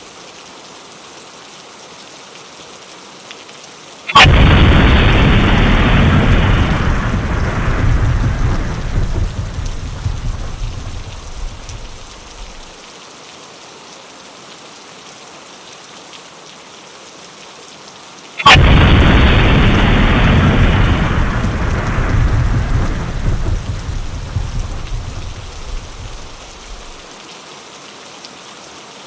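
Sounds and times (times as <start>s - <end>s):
steady rain: 0.0s - 29.0s
sharp thunderclap: 4.2s - 12.7s, 18.4s - 27.1s
thunder rumbling: 4.2s - 12.7s, 18.4s - 27.0s.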